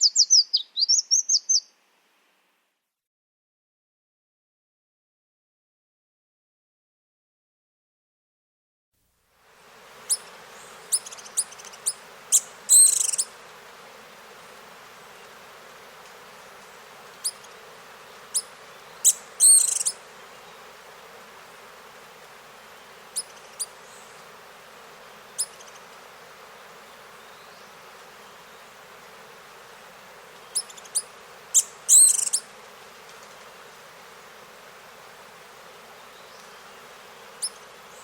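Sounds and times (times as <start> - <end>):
small birds chirping: 0.0 - 1.8, 9.9 - 38.0
background hiss: 0.0 - 2.9, 9.0 - 38.0.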